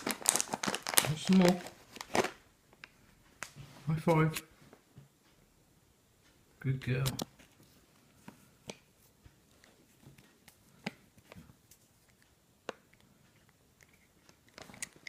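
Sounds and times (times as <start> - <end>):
cat chewing a treat: 12.9 - 15.0.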